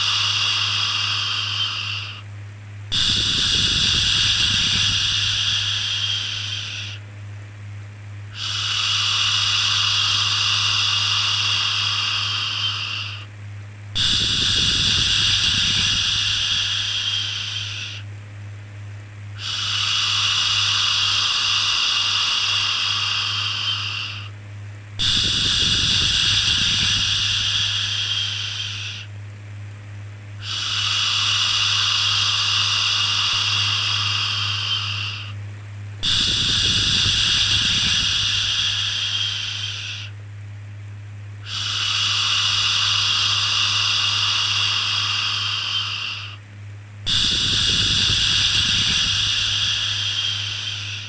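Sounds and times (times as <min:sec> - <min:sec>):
low steady hum: 0:00.0 - 0:51.0
person shushing: 0:47.1 - 0:51.0.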